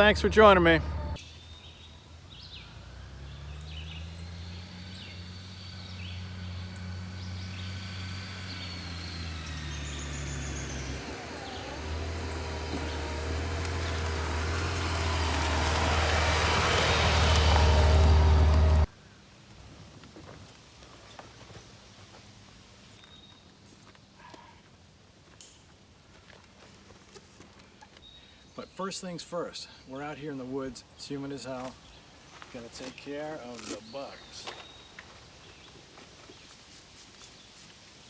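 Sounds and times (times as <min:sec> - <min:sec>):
birds chirping: 0:00.0 - 0:18.9, 0:27.8 - 0:36.6
motorcycle engine hum: 0:00.0 - 0:18.9
wind and road noise: 0:00.0 - 0:24.2.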